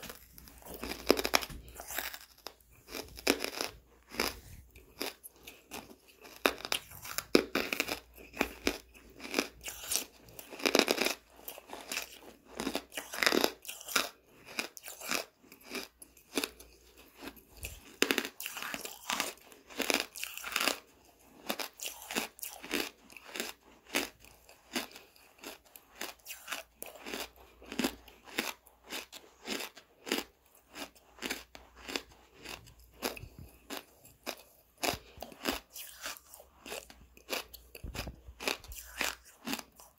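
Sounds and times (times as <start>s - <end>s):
charcoal being chewed: 0.0s - 39.9s.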